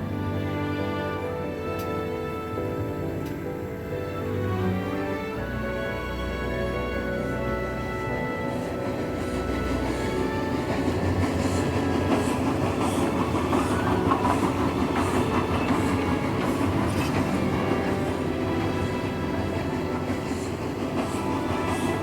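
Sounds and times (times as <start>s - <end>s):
music: 0.0s - 22.0s
train rattling along track: 0.0s - 22.0s
wheels clicking over rail joints: 8.6s - 22.0s.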